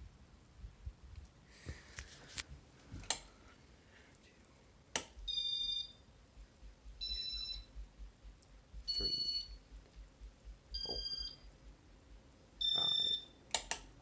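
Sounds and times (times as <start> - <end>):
sharp clicks: 5.0 - 5.3, 13.5 - 13.9
ceiling fan control beeping: 5.0 - 14.0.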